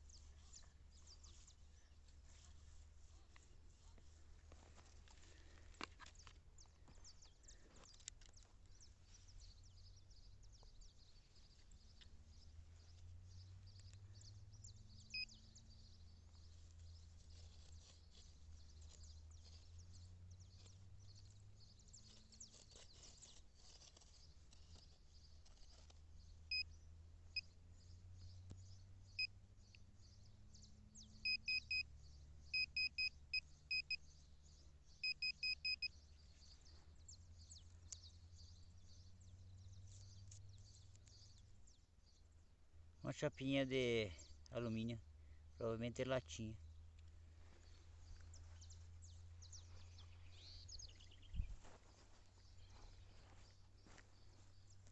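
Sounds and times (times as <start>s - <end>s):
metal detector beeps: 31.2s - 31.9s, 32.5s - 34.0s, 35.0s - 35.9s.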